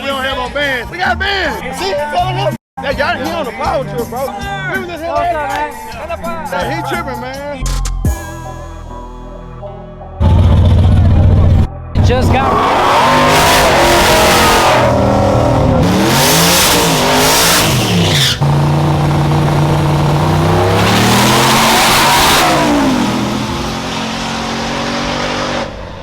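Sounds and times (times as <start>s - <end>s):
race car engine revving: 10.2s - 26.0s.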